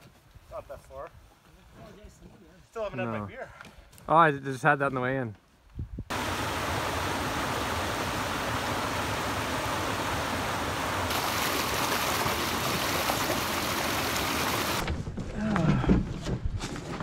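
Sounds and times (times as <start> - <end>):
creek running over rocks: 6.1 - 14.8.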